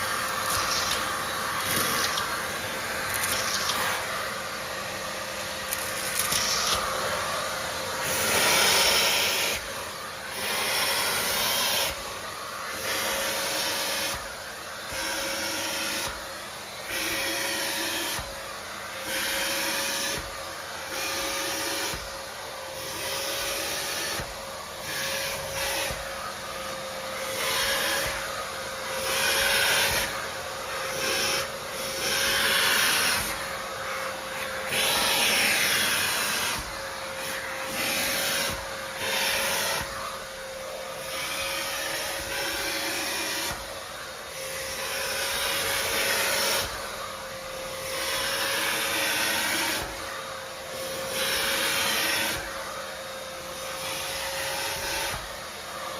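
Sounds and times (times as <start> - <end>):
vacuum cleaner motor whine: 0.0 - 55.9
vacuum nozzle rasping on surface: 0.0 - 55.9.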